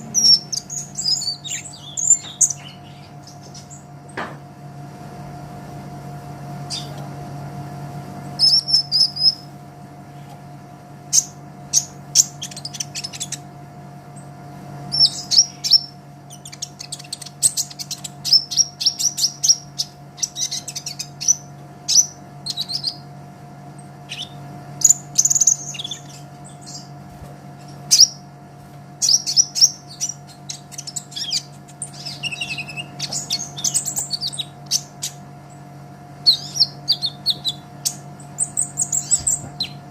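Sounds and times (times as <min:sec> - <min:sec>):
bird singing high-pitched chirps: 0:00.0 - 0:03.9, 0:06.7 - 0:07.0, 0:08.4 - 0:09.5, 0:11.1 - 0:13.4, 0:14.9 - 0:23.1, 0:24.1 - 0:26.9, 0:27.9 - 0:28.3, 0:29.0 - 0:35.2, 0:36.2 - 0:39.8.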